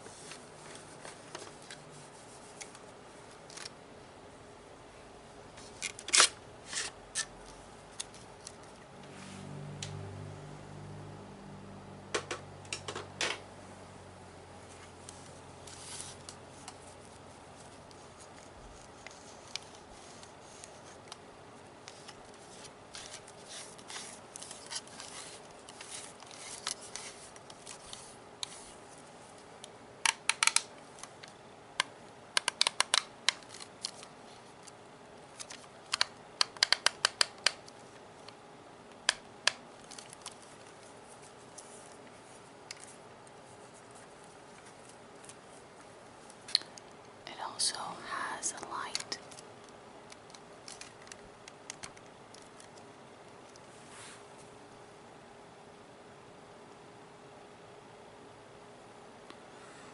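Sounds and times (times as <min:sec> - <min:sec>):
scratchy rubbing on plastic: 0:21.9 - 0:28.8
sharp plastic clicks: 0:30.0 - 0:34.1, 0:35.4 - 0:37.8, 0:48.9 - 0:52.8.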